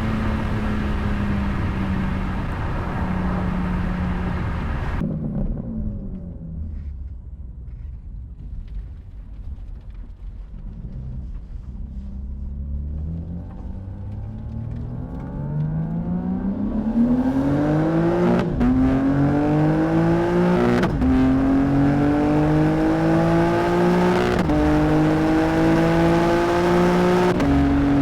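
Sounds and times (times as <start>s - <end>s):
car engine running: 0.0s - 7.9s
road and wind roar: 0.0s - 28.0s.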